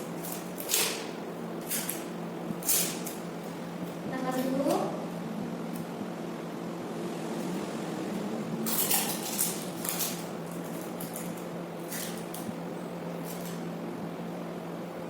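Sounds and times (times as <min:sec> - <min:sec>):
tape and straws rustling: 0:00.0 - 0:04.6, 0:08.7 - 0:12.6, 0:13.2 - 0:13.6
steady low hum: 0:00.0 - 0:15.0.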